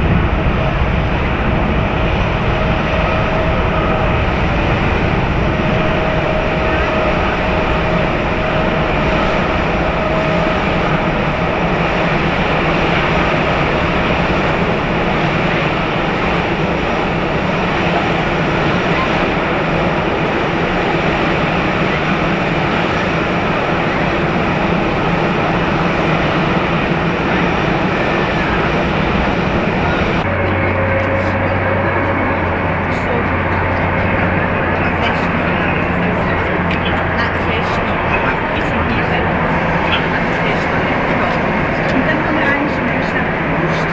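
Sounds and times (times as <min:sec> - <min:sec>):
low hum: 0:00.0 - 0:16.3, 0:30.1 - 0:43.9
jet engines roaring: 0:00.0 - 0:43.9.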